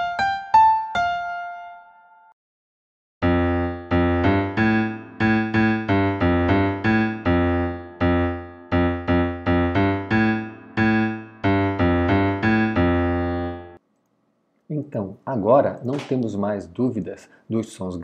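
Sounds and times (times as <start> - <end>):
low piano notes playing tune: 0.0 - 2.3, 3.2 - 13.8.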